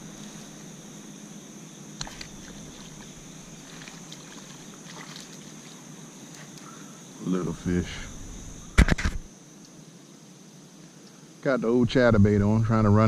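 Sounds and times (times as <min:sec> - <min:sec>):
faint outdoor hiss: 0:00.0 - 0:13.0
insect chirring: 0:00.0 - 0:13.0
sharp click: 0:08.8 - 0:09.8.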